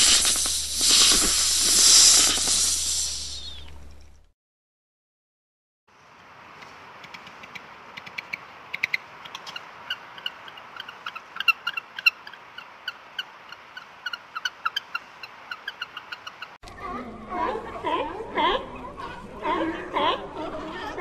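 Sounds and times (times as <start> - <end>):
steady hiss: 0.0 - 4.3.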